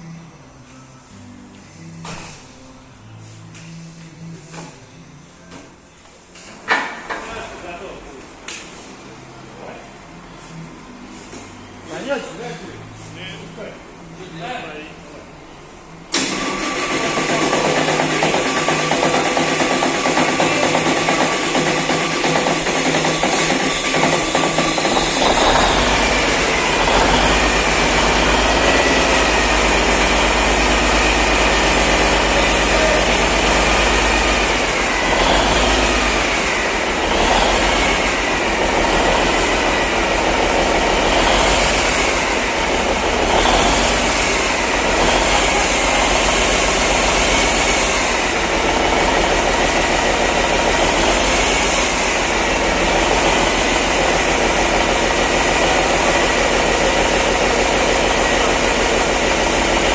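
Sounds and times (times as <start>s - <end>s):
diesel engine running: 7.2s - 59.9s
engine revving up and down: 16.3s - 59.9s.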